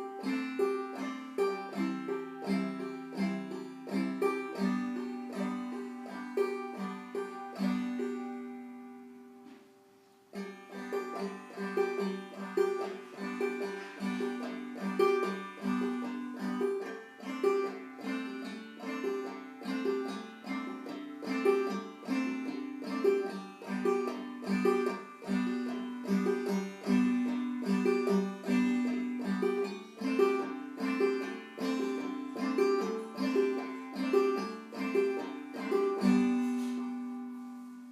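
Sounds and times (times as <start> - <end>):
banjo playing: 0.0 - 37.9.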